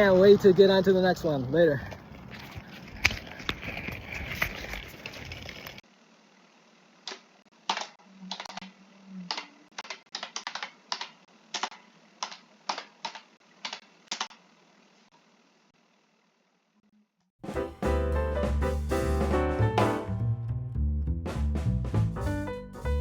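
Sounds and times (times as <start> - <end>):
keyboard typing: 9.3 - 14.4.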